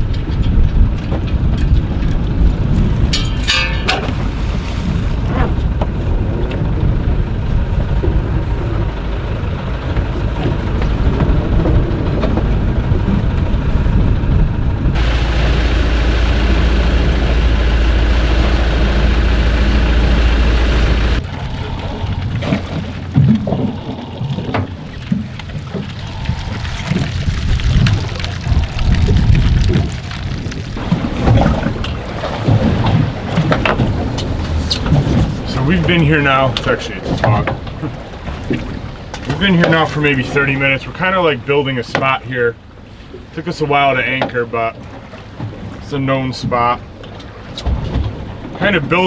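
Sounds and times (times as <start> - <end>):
steady wind roar: 0.0 - 37.0
wind buffeting microphone: 0.0 - 39.6
water splashing: 3.4 - 12.7, 14.9 - 40.8.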